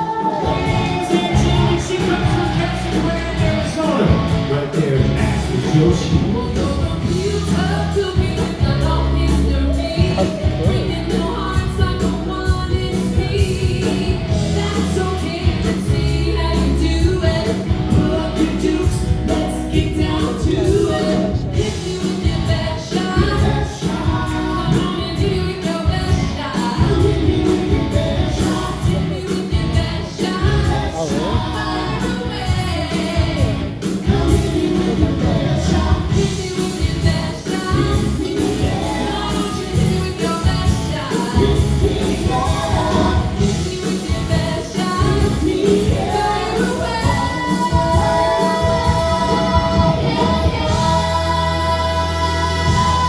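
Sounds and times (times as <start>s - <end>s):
bass: 0.0s - 53.0s
live rock band with singing: 0.0s - 53.0s
steady drum beat: 0.0s - 53.0s.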